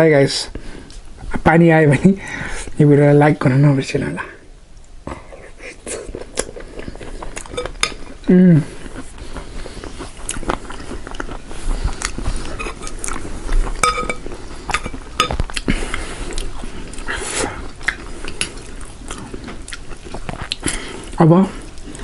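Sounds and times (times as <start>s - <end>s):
crunching and chewing: 5.7s - 22.0s.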